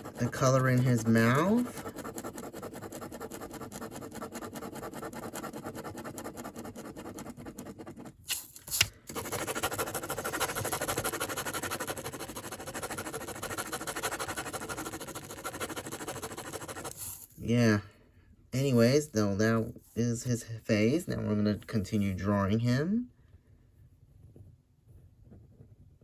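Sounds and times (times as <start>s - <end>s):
drawing tool scratching on paper: 0.0s - 17.4s.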